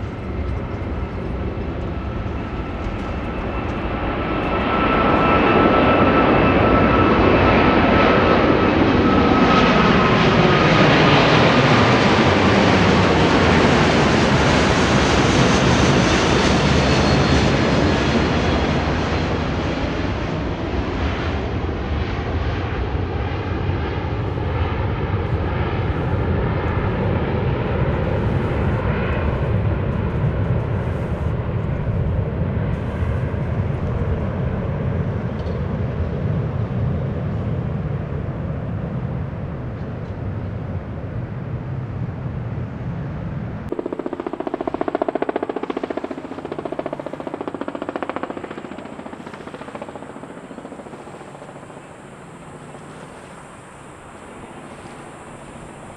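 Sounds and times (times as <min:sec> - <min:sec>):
jet engines at takeoff power: 0:00.0 - 0:55.9
thin jet noise: 0:43.7 - 0:55.9.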